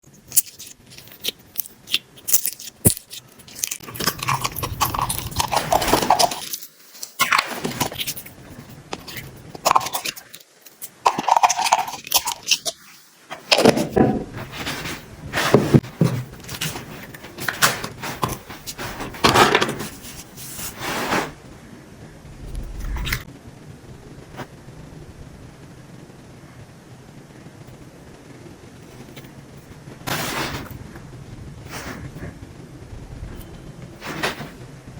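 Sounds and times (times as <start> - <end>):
beads crunching and clinking: 0.1 - 8.2.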